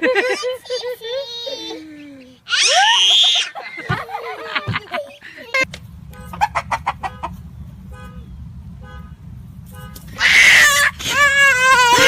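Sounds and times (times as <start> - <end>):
chickens clucking: 6.2 - 7.6.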